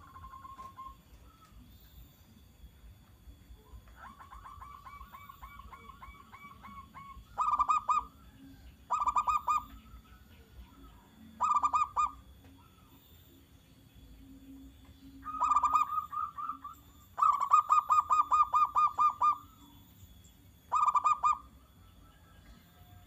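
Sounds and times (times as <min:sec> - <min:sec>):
dove cooing: 0:03.6 - 0:13.0, 0:15.0 - 0:19.7, 0:20.7 - 0:23.0.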